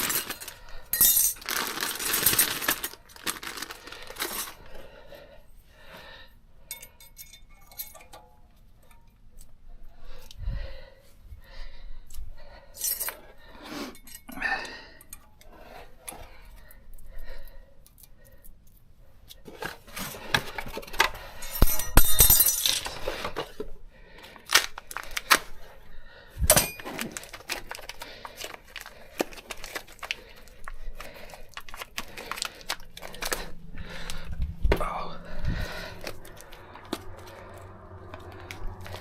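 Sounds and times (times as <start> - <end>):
metal parts clinking and clanking: 0.0 - 4.6, 6.7 - 9.2, 12.8 - 13.2, 20.5 - 23.5, 26.5 - 27.6.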